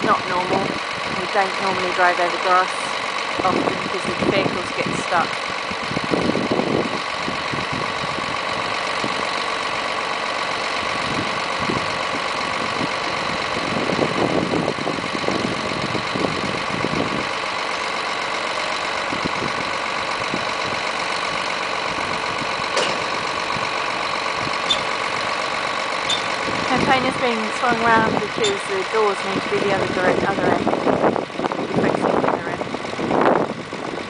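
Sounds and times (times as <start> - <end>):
lorry engine idling: 0.0 - 34.0
crane hydraulic whine: 24.6 - 25.0.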